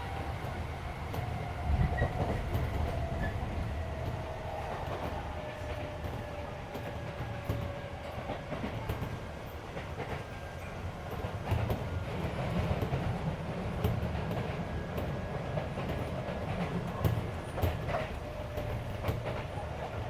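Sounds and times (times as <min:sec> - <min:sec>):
train wheels rumbling on rail: 0:00.0 - 0:20.0
clicks over rail joints: 0:11.0 - 0:20.0.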